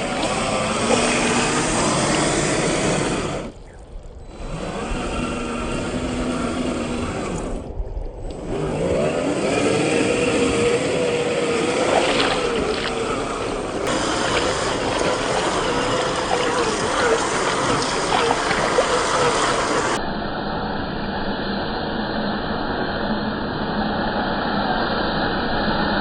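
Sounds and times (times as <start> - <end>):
electric motor whining: 0.0 - 3.6, 4.2 - 20.0.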